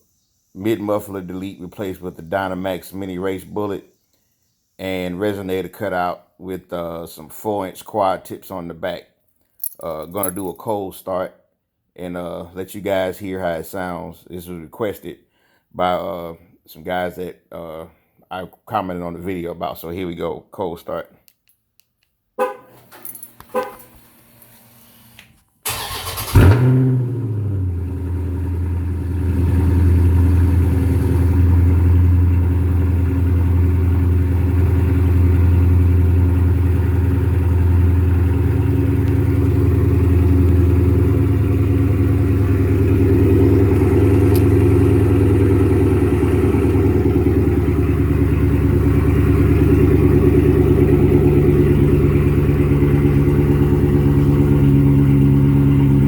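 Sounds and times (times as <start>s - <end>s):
engine cranking and idling: 25.6s - 56.0s.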